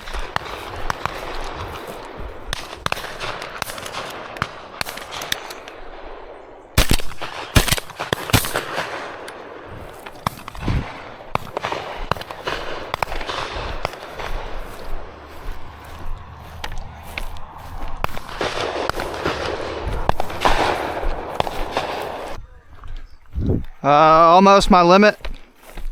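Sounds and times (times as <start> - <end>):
small cracks: 0.0 - 5.9, 6.8 - 23.1
shotgun shots: 0.0 - 22.4
noisy background: 9.9 - 22.4.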